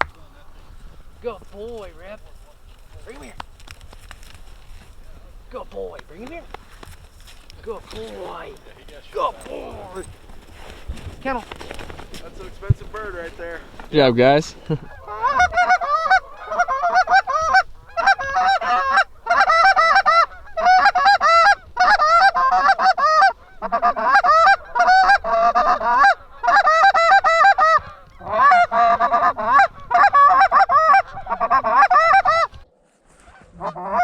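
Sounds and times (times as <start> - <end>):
goose honking: 12.2 - 34.0.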